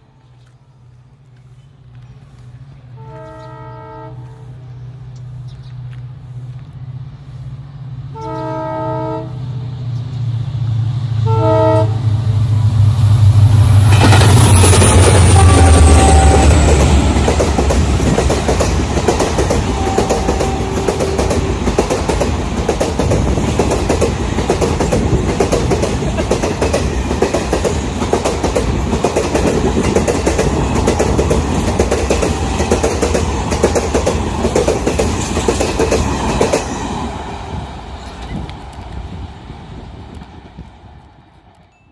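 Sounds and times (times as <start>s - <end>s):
locomotive engine rumble: 0.0s - 41.7s
train horn: 2.9s - 4.7s, 8.1s - 9.5s, 11.2s - 12.2s, 15.1s - 17.2s, 19.6s - 21.6s.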